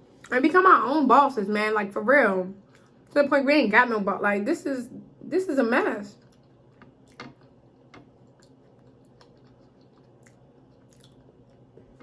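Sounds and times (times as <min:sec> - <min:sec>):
faint chewing: 0:02.6 - 0:03.2, 0:06.1 - 0:12.0.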